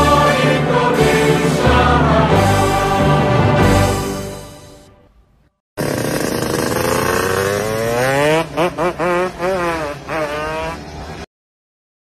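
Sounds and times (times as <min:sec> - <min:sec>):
motorcycle engine revving: 0:05.8 - 0:11.3.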